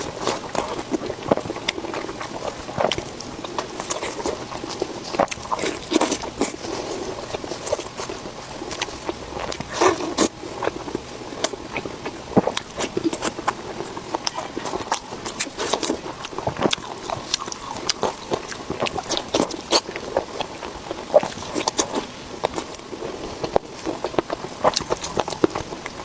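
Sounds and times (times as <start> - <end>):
close-miked chewing: 0.0 - 26.0.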